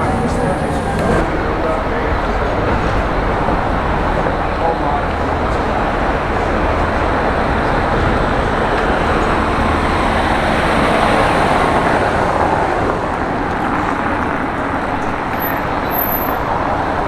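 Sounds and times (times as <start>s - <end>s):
cars passing by: 0.0s - 17.0s.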